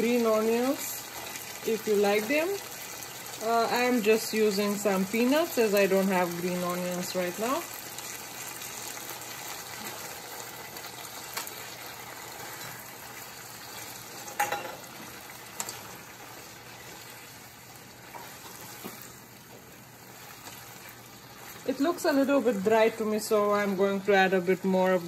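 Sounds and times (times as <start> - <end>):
chicken and vegetables sizzling in sauce: 0.0 - 25.0.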